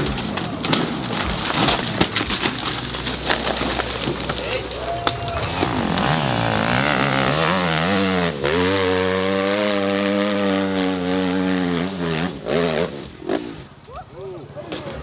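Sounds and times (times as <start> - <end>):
dirt bike engine revving: 2.8 - 13.8.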